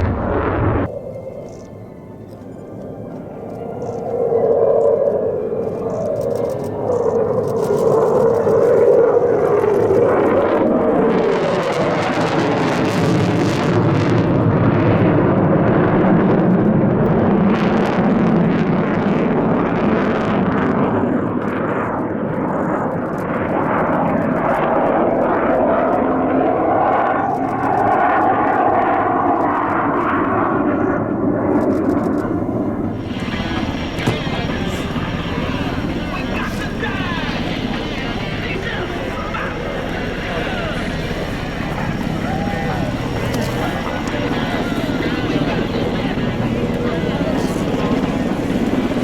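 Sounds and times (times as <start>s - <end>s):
jet engines running: 0.0s - 49.0s.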